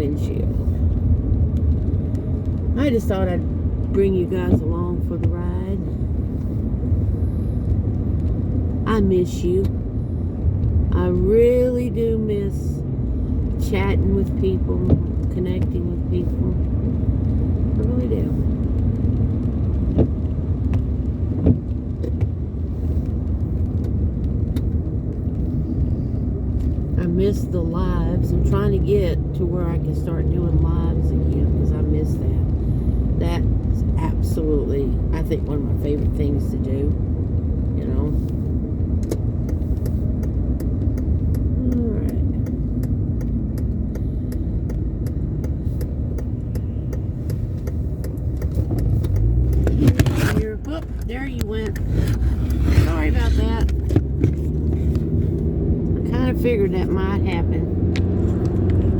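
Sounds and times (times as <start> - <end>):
car driving rumble: 0.0 - 58.9
sharp ticks: 39.0 - 52.2.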